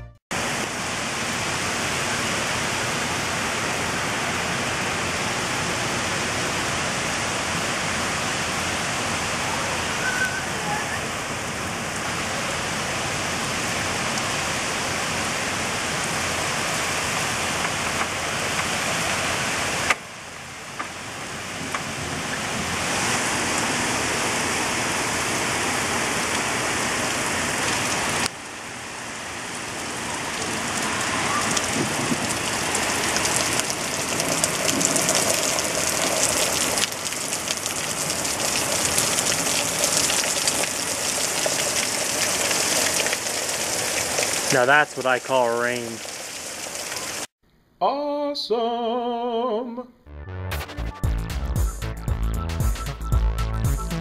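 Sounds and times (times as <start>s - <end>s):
heavy rain pouring: 0.3s - 47.3s
raindrops spattering nearby: 29.4s - 47.3s.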